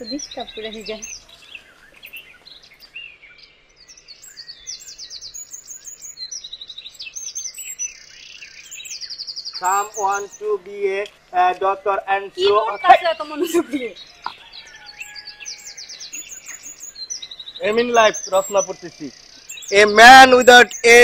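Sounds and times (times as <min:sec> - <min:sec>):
birds chirping and trilling: 0:00.0 - 0:21.0
person speaking: 0:09.6 - 0:14.0, 0:19.7 - 0:21.0.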